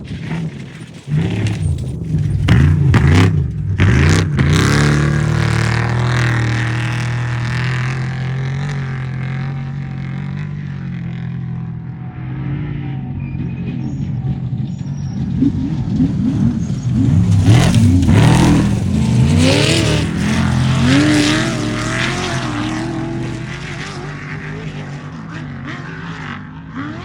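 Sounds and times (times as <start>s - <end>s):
race vehicle engine revving: 0.0s - 27.0s.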